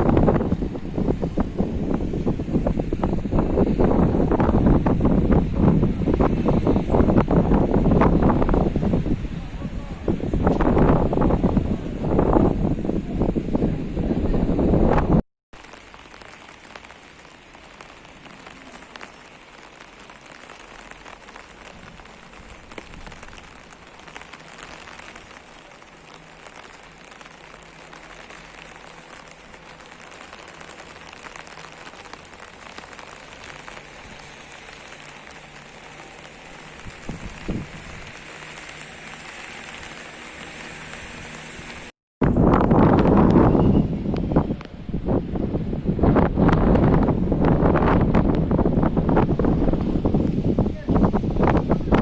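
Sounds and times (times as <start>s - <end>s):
rain pattering: 0.0s - 43.5s, 46.1s - 52.0s
water dripping: 15.6s - 41.9s.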